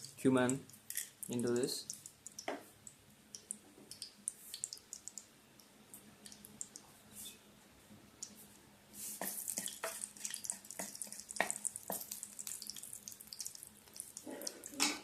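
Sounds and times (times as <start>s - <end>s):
spices sizzling in hot oil: 9.0s - 15.0s.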